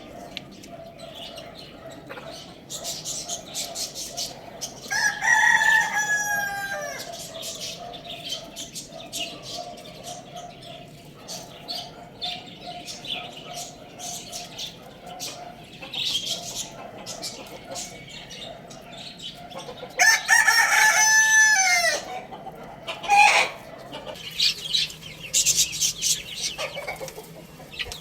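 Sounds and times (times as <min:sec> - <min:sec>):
small birds chirping: 0:00.0 - 0:28.0
rooster crowing: 0:04.8 - 0:07.7, 0:19.9 - 0:22.3, 0:22.9 - 0:23.7.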